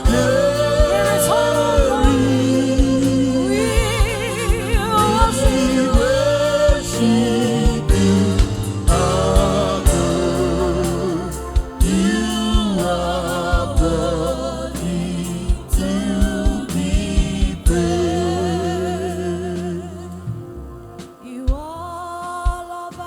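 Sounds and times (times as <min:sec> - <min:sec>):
drum hits: 0:00.0 - 0:14.2
band playing: 0:00.0 - 0:21.8
voices singing: 0:00.0 - 0:23.0.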